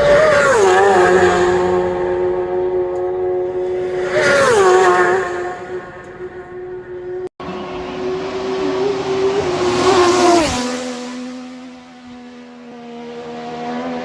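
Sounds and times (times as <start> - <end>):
racing motorcycles passing by: 0.0 - 14.0.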